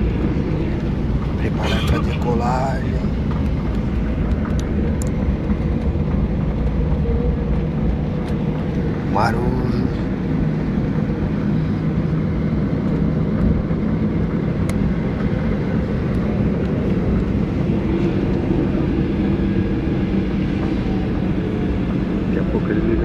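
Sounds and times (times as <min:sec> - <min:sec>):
airliner cabin drone: 0:00.0 - 0:23.0.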